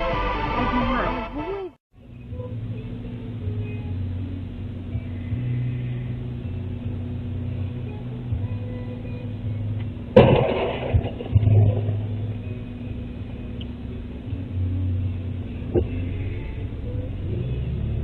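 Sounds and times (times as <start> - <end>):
car engine humming: 0.0 - 18.0
rattling and clatter: 10.2 - 12.4
vehicle collision bang: 10.2 - 12.4.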